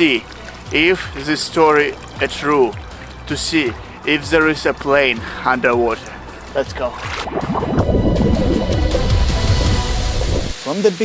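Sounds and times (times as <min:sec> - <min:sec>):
water bubbling and gurgling: 0:00.0 - 0:10.6
background music: 0:00.0 - 0:11.0
short rising bubbles: 0:06.9 - 0:10.6.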